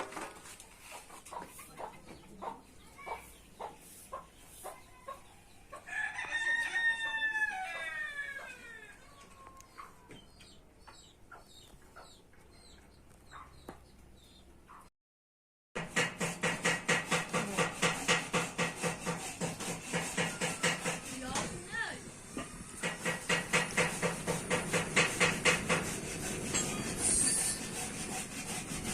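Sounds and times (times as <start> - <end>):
faint chirps and clucks: 0.5 - 14.9
rooster crowing: 5.8 - 9.6.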